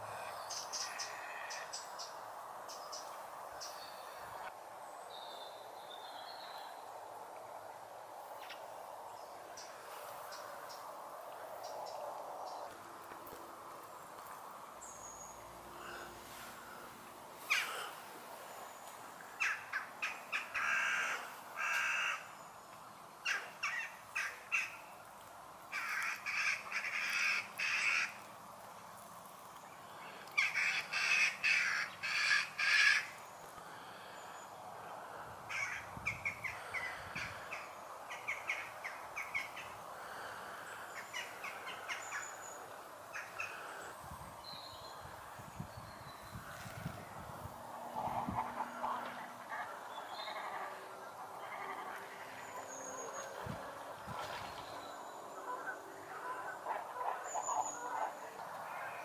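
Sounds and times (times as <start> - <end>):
harsh caw-like bird calls: 19.4 - 22.4, 25.7 - 28.3, 30.0 - 44.0.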